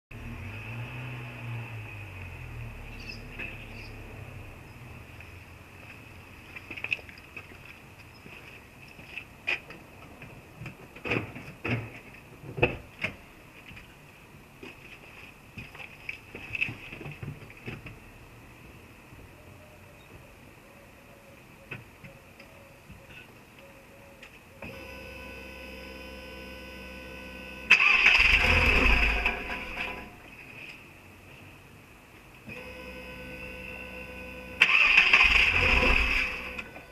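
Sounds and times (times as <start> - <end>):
car engine humming: 0.1 - 6.8, 24.6 - 30.5, 32.4 - 36.9
car engine cranking: 27.6 - 30.2, 32.5 - 36.9.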